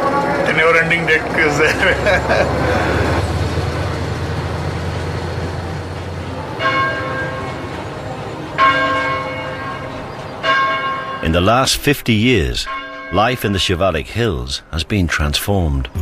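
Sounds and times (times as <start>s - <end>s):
church bell tolling: 5.9s - 11.7s, 12.4s - 14.7s.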